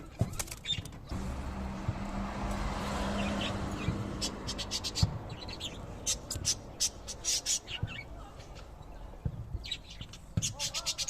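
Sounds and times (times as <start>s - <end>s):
parrots chirping: 3.0s - 8.6s.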